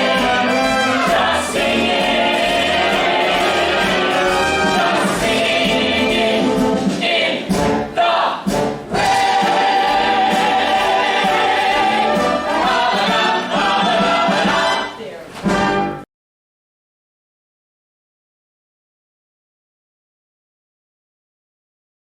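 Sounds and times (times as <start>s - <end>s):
cast singing together: 0.0s - 14.9s
musical accompaniment: 0.0s - 16.1s.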